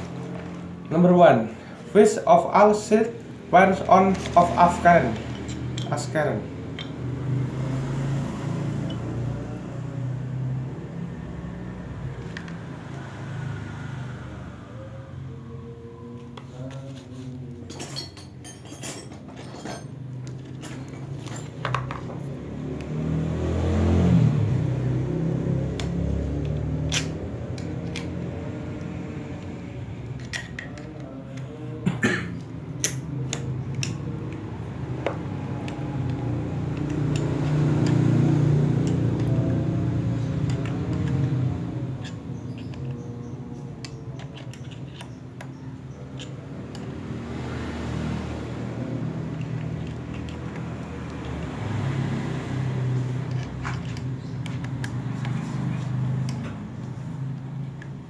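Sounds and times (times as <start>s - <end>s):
metal parts clinking: 3.8s - 6.1s, 17.6s - 22.2s, 30.2s - 31.0s, 42.0s - 46.9s.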